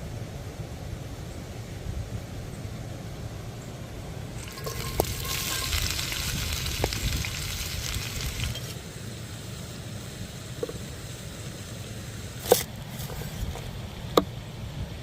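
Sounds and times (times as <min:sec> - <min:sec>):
food sizzling in a pan: 0:04.4 - 0:08.8.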